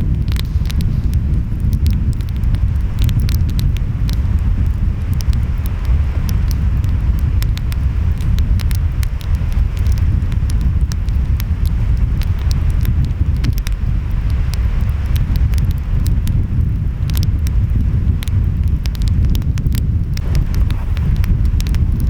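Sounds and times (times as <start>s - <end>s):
wind: 0.0s - 22.0s
wood fire crackling and popping: 0.0s - 22.0s
surf rumbling: 20.1s - 22.0s.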